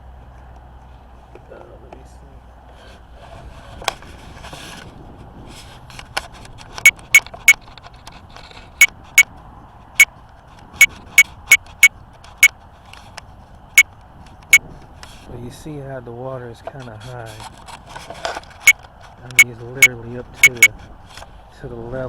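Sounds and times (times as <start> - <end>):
faint steady background noise: 0.0 - 22.0
sharp ringing clicks: 6.8 - 7.6, 20.4 - 20.7.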